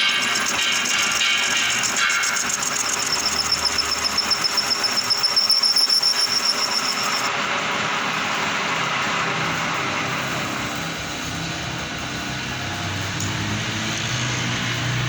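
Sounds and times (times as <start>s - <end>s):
lathe tool squealing on metal: 0.0s - 7.3s
lathe running: 0.0s - 15.0s.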